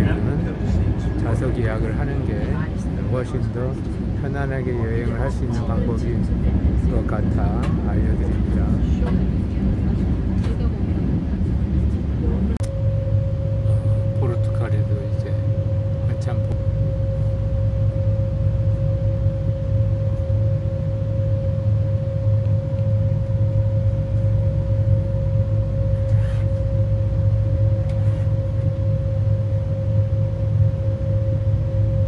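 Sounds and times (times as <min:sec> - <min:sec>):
train rumbling: 0:00.0 - 0:20.5
constant mid-pitched hum: 0:00.0 - 0:32.0.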